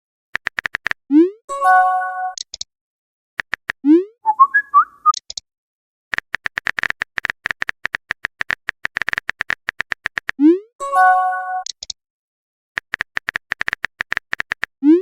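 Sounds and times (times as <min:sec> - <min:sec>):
phone keyboard typing clicks: 0:00.4 - 0:01.0, 0:03.4 - 0:03.8, 0:06.1 - 0:10.4, 0:11.6 - 0:12.0, 0:12.8 - 0:14.7
chirpy electronic blips: 0:03.9 - 0:05.2.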